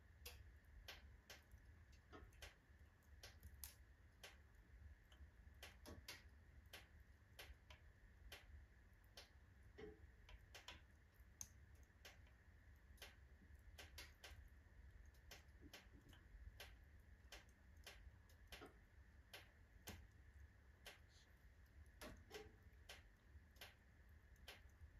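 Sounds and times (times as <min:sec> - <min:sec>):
logs crackling and popping: 0:00.2 - 0:06.8.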